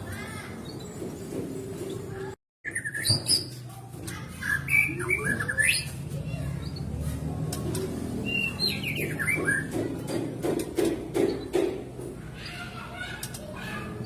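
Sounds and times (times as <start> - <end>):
bird singing whistled notes: 8.2 - 9.4.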